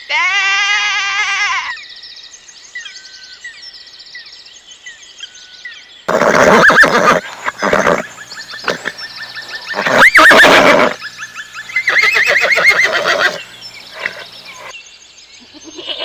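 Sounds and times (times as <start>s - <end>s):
animal bleating: 0.1s - 1.8s, 15.5s - 16.0s
small birds chirping: 1.5s - 16.0s
horse neighing: 6.1s - 11.0s, 11.8s - 14.7s, 15.6s - 16.0s.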